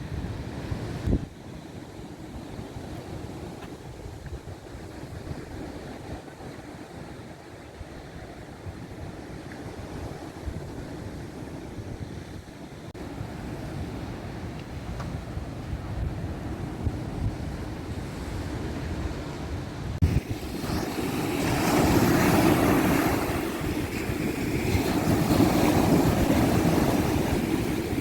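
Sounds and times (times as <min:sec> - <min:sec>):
wind rumbling on microphone: 0:00.0 - 0:28.0
sea surf washing onto beach: 0:13.0 - 0:28.0.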